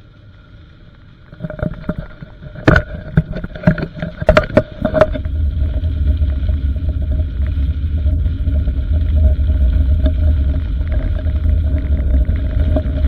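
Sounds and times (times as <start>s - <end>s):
low rumble: 4.3s - 13.0s.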